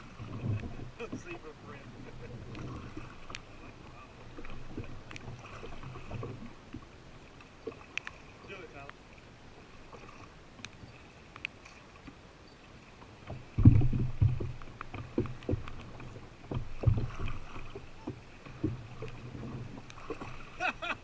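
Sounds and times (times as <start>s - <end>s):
paddle knocking against hull: 0.0s - 8.5s, 13.0s - 21.0s.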